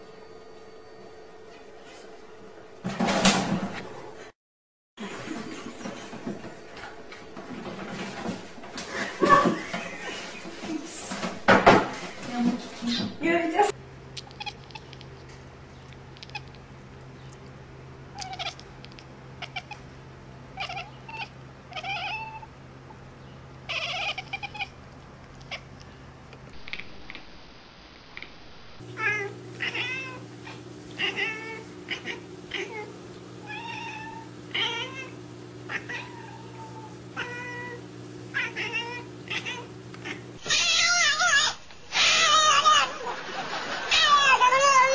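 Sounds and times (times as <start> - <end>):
steady low hum: 13.4 - 40.5
cats meowing: 14.2 - 15.2, 16.1 - 16.6, 18.1 - 19.9, 20.5 - 22.5, 23.6 - 25.8, 29.0 - 43.0, 43.9 - 44.9.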